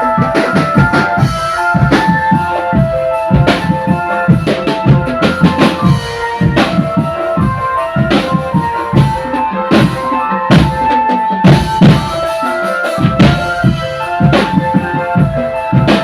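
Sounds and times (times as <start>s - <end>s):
bass drum beat: 0.0s - 16.0s
marching band melody: 0.0s - 16.0s
snare drum: 3.3s - 16.0s.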